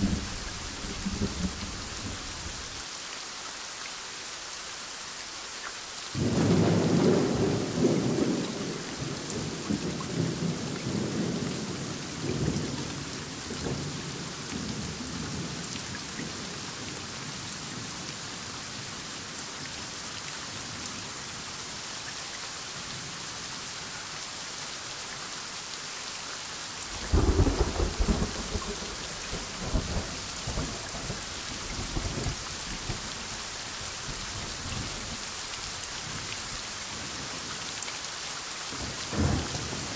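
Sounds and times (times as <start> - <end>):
thunder rumbling: 0.0 - 2.7
heavy rain falling: 0.0 - 39.9.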